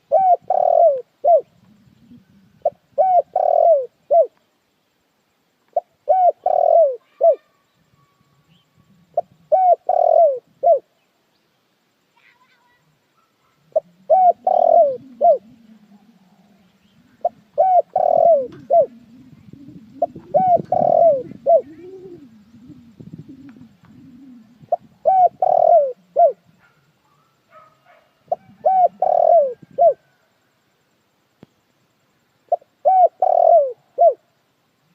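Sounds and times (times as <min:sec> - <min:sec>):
dove cooing: 0:00.0 - 0:04.4, 0:05.7 - 0:10.9, 0:13.2 - 0:30.3, 0:32.5 - 0:34.3
faint low hum: 0:00.1 - 0:34.9
other birds chirping: 0:05.6 - 0:30.3.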